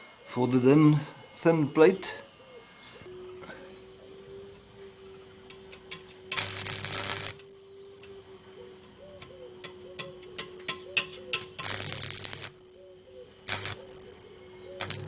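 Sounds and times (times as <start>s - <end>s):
faint hum: 0.0s - 15.0s
arc welder crackling: 3.8s - 8.8s, 10.0s - 15.0s
sharp ticks: 11.3s - 12.7s, 13.4s - 14.2s, 14.8s - 15.0s.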